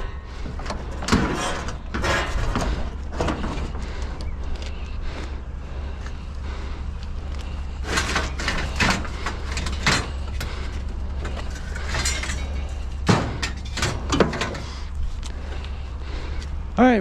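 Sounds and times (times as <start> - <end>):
scrap metal clattering in trailer: 0.0 - 3.9, 7.7 - 15.0
steady low hum: 0.0 - 17.0.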